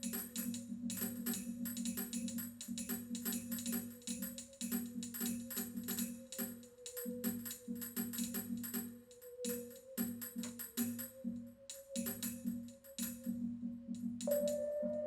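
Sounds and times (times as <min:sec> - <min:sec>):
wavering held tone: 0:14.3 - 0:15.0.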